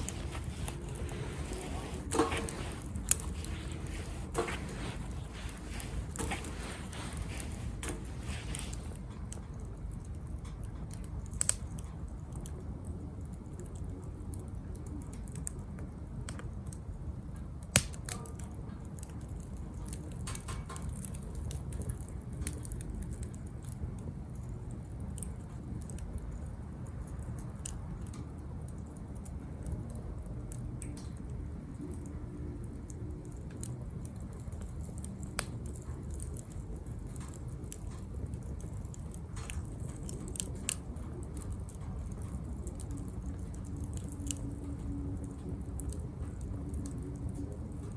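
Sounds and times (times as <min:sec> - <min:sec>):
sharp pops from fire: 0:00.0 - 0:12.5, 0:17.6 - 0:23.8, 0:33.2 - 0:47.9
wood fire crackling: 0:00.0 - 0:47.9.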